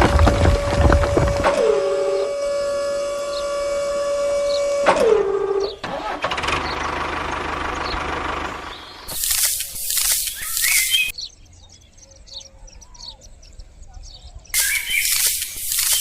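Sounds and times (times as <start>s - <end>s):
pulsing engine-like running: 0.0s - 10.2s
small motor whining: 0.1s - 7.2s, 14.6s - 16.0s.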